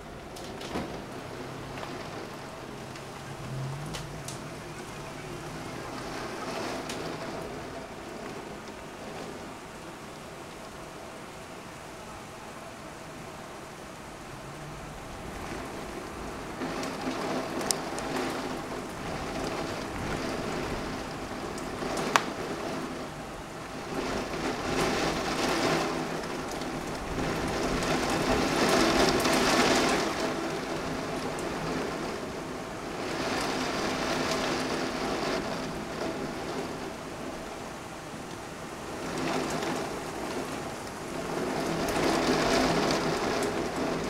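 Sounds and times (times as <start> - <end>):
heavy rain against window: 0.0 - 44.0
sharp tap: 22.1 - 22.4.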